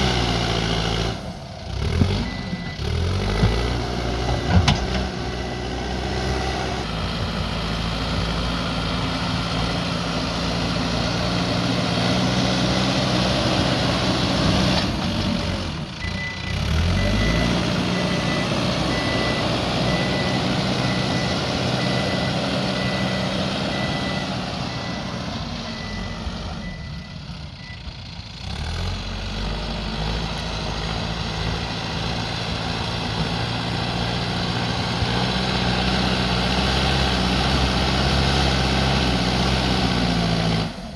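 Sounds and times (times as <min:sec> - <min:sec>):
diesel engine running: 0:00.0 - 0:40.9
reversing alarm beeping: 0:02.0 - 0:03.6, 0:16.0 - 0:27.9.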